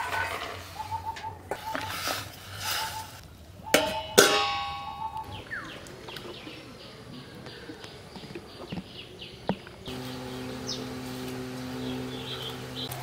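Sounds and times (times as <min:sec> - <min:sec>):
bird chirping: 0:00.2 - 0:13.0
low hum: 0:09.8 - 0:13.0.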